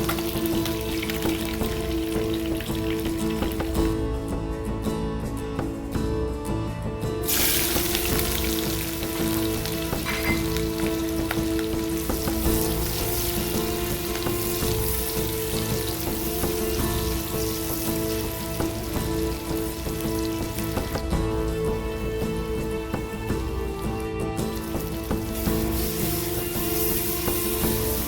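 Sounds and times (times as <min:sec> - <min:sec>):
food sizzling in hot oil: 0:00.0 - 0:03.9, 0:07.2 - 0:21.0, 0:24.5 - 0:28.0.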